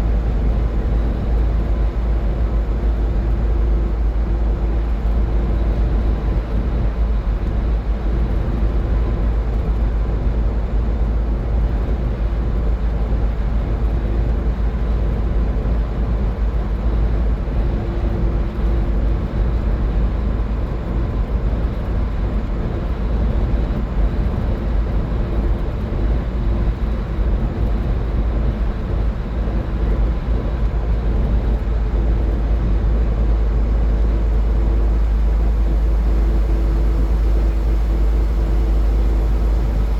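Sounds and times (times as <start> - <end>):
car driving at highway speed: 22.4 - 39.9
faint steady hum: 29.6 - 39.9.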